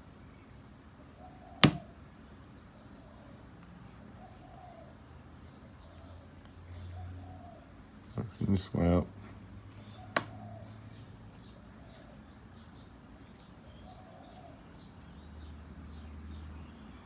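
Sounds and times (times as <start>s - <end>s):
bird cooing: 4.2s - 5.0s.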